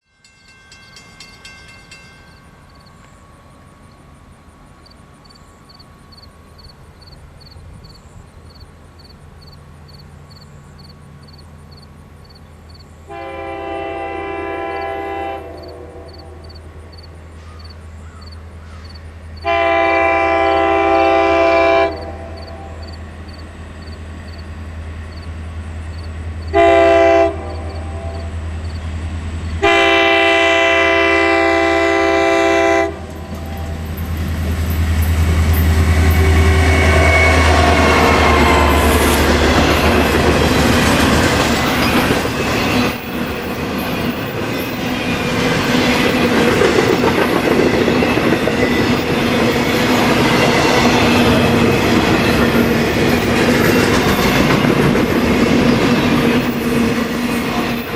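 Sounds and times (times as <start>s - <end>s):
train cars rumbling: 0.2s - 57.9s
locomotive engine drone: 0.6s - 57.9s
train horn: 13.0s - 16.7s, 19.4s - 23.0s, 26.4s - 28.8s, 29.6s - 34.1s, 35.0s - 43.1s
train wheels clacking: 33.0s - 57.9s.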